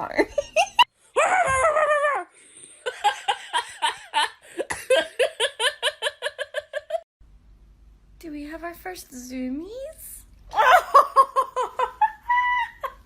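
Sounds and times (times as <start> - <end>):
person giggling: 0.3 - 7.0, 10.5 - 13.0.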